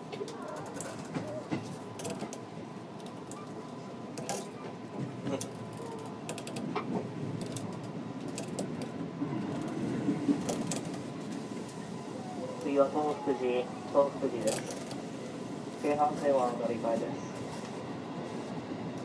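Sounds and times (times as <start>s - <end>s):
train running rumble: 0.0s - 19.0s
clicking and rattling: 0.2s - 2.4s, 4.2s - 11.1s.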